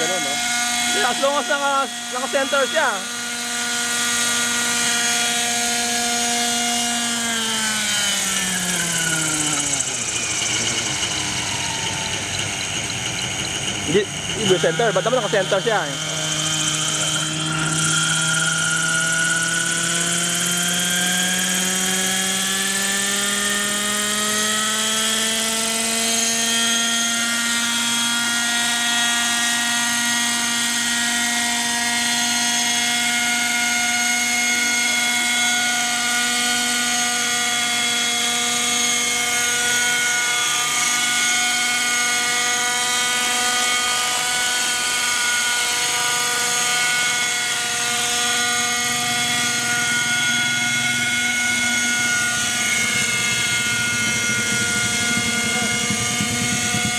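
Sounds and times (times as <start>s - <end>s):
rc helicopter engine running: 0.0s - 56.9s.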